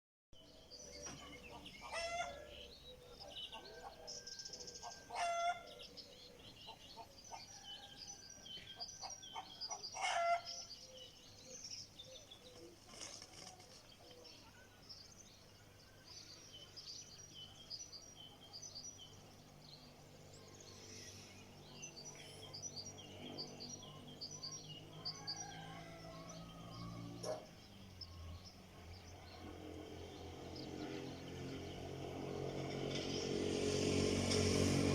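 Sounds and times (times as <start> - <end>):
small birds chirping: 0.4 - 34.7
chickens calling: 1.1 - 4.2, 4.8 - 5.9, 9.0 - 10.6.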